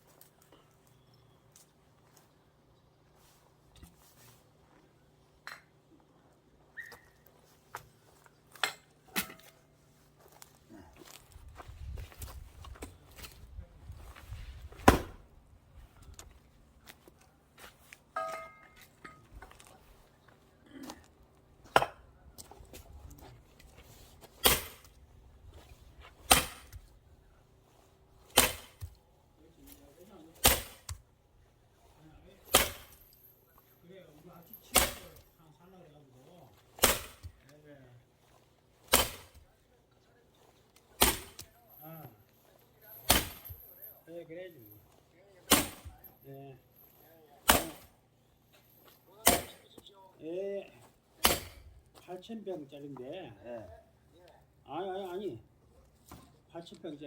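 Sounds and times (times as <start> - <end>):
axe striking firewood: 8.6 - 9.6, 14.7 - 15.2, 21.7 - 22.0, 24.4 - 24.9, 26.1 - 26.9, 28.2 - 29.0, 30.4 - 31.0, 32.4 - 33.0, 34.7 - 35.2, 36.7 - 37.4, 38.8 - 39.4, 40.9 - 41.5, 43.0 - 43.7, 45.5 - 46.0, 47.4 - 47.9, 49.2 - 49.7, 51.2 - 51.7.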